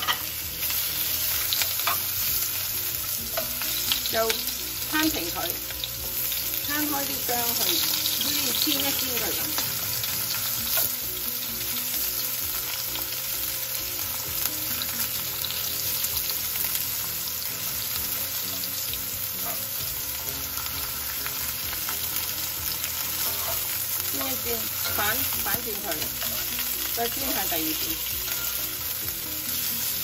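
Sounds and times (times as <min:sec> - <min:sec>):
ginger sizzling in hot oil: 0:00.0 - 0:30.0
spatula scraping and tapping wok: 0:01.5 - 0:02.4.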